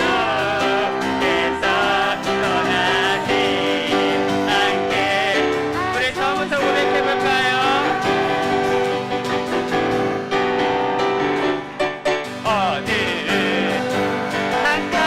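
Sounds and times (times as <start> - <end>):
group singing worship song: 0.0 - 9.1, 12.6 - 15.0
piano accompaniment: 0.0 - 15.0.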